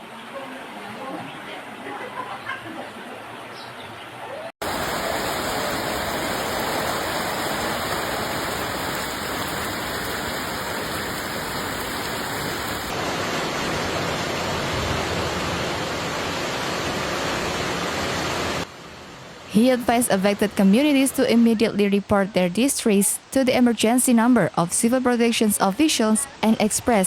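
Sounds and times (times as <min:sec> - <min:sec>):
floodwater rushing: 0:04.6 - 0:18.7.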